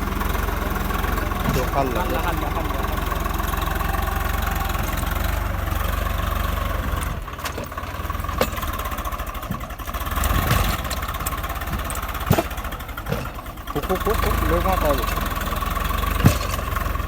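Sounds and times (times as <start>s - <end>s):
tractor diesel engine running: 0.0s - 17.0s
sharp knocks: 11.7s - 13.4s.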